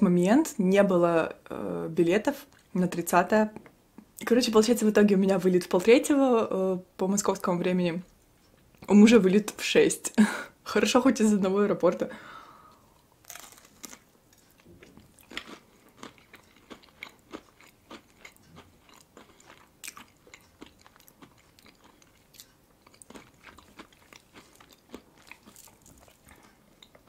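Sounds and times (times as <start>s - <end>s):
chewing crunchy pastry: 13.0s - 27.0s.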